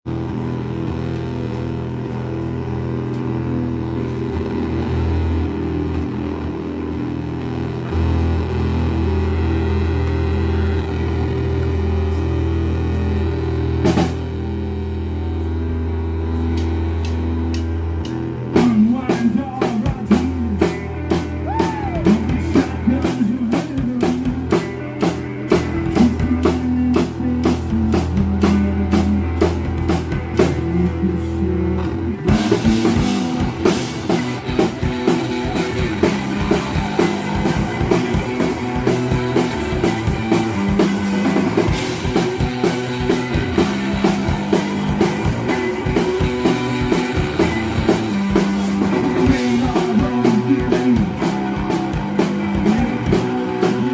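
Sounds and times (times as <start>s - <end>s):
rock band playing live: 0.0s - 53.9s
sustained low bass note: 0.1s - 24.6s
steady drumbeat: 0.1s - 53.9s.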